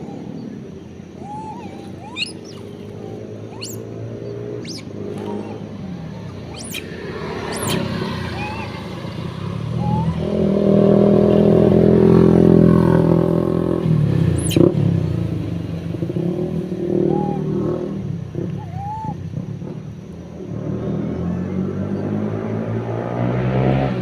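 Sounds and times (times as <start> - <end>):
vehicle engine humming: 0.0 - 24.0
sharp falling squeal: 3.5 - 3.8, 6.4 - 8.8.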